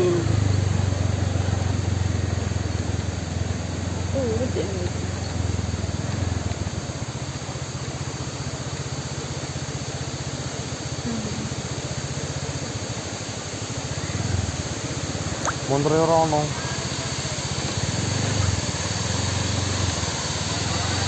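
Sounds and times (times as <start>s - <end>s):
waterfall rushing: 6.1s - 21.0s.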